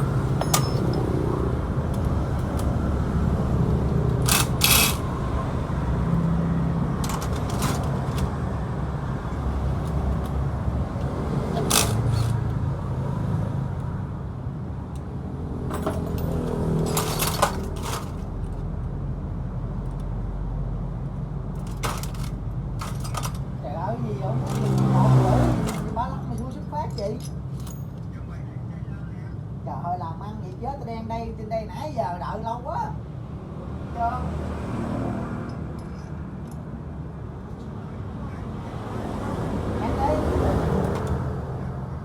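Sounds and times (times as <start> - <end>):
sharp metallic clinks of tools: 0.4 - 1.2.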